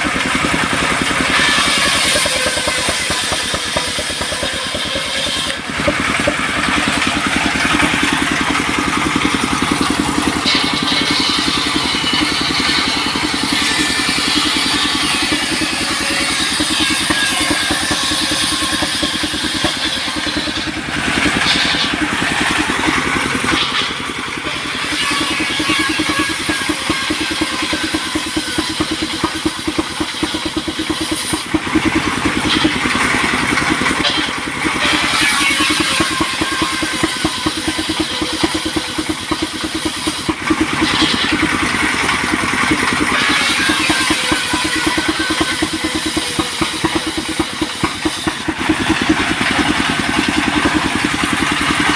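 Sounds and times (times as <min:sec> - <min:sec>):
sawmill engine running: 0:00.0 - 0:51.9
hiss: 0:24.5 - 0:31.6, 0:34.8 - 0:41.5, 0:43.1 - 0:49.1.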